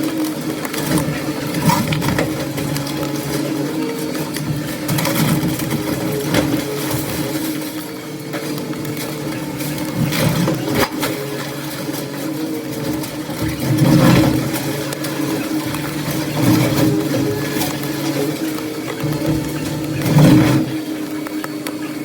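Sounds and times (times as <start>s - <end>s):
demolition machine engine running: 0.0s - 22.0s
debris knocking: 0.8s - 7.6s, 12.8s - 20.9s.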